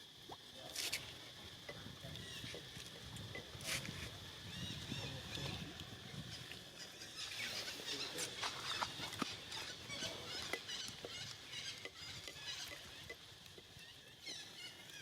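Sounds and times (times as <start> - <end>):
monkeys squeaking: 6.8 - 14.5.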